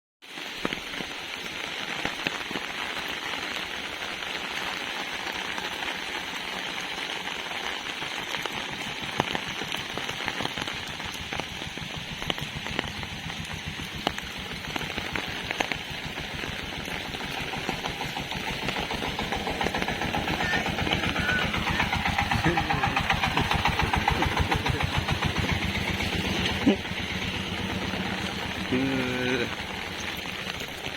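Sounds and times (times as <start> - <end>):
heavy rain on an umbrella: 0.2 - 30.9
engine: 6.9 - 30.9.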